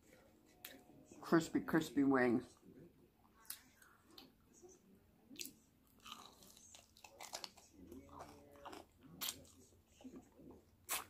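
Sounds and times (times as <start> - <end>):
crispy food crunching: 5.4 - 11.0.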